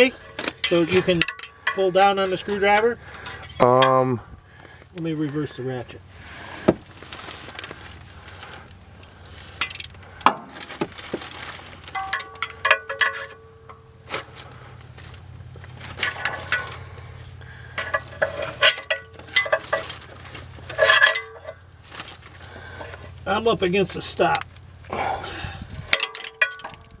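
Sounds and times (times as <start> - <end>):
short metallic rings: 0.0 - 4.0, 11.9 - 14.1, 16.0 - 21.7, 25.6 - 27.0
tools clinking and knocking: 0.0 - 4.0, 9.6 - 10.4, 11.9 - 13.9, 15.9 - 16.9, 17.7 - 21.7, 25.6 - 27.0.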